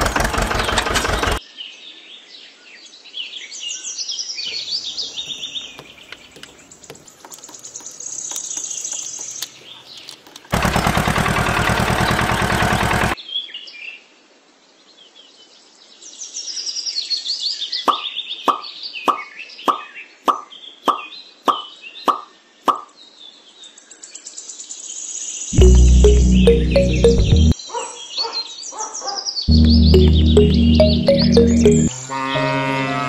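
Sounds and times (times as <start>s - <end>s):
birds chirping: 4.5s - 11.1s, 25.6s - 31.9s.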